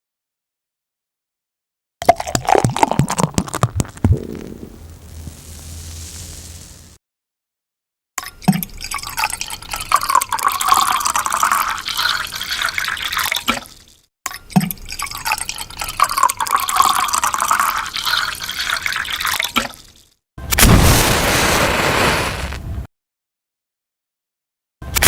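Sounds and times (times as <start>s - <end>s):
liquid fizzing: 2.1s - 7.0s
soda bottle popping open: 2.3s - 4.6s.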